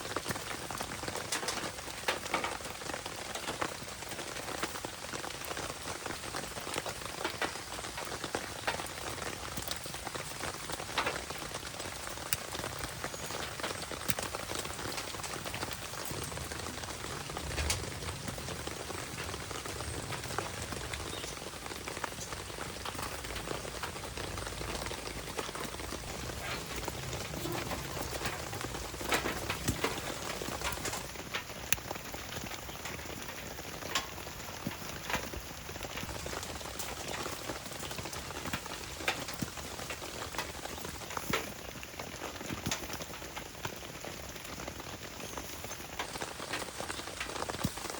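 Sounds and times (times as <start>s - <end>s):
rain falling: 0.0s - 47.9s
sharp pops and ticks: 6.7s - 18.5s, 19.1s - 37.9s.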